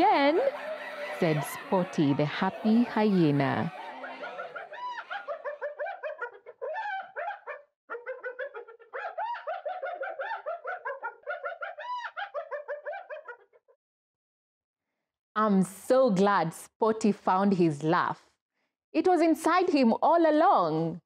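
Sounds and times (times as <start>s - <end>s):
hyena laughing: 0.0s - 13.6s.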